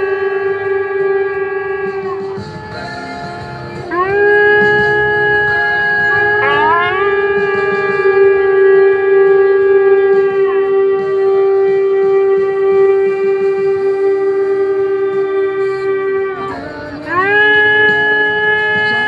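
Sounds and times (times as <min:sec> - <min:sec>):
horn tones sliding: 0:00.0 - 0:08.6
shofar long note: 0:00.0 - 0:19.0.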